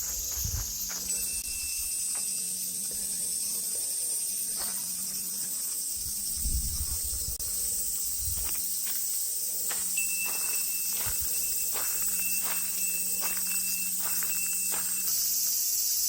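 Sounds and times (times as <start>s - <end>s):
faint footsteps: 0.0s - 2.3s, 4.5s - 5.8s, 8.2s - 15.2s
cicadas droning: 0.0s - 16.0s.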